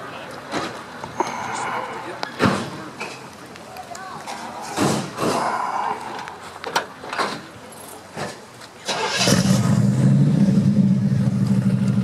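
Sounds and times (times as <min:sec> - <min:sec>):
car engine starting and idling: 0:08.8 - 0:12.0.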